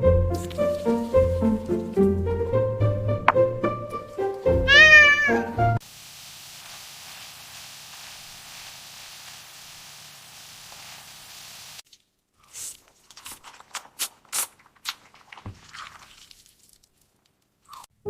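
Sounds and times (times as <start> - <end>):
light background music: 0.0 - 5.8
cat meowing: 4.6 - 5.6
soft steady hiss: 5.8 - 12.4.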